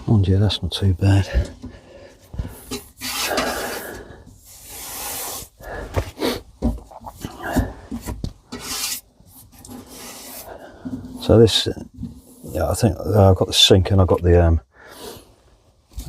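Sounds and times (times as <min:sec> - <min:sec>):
scraping against wood: 0:02.4 - 0:11.3.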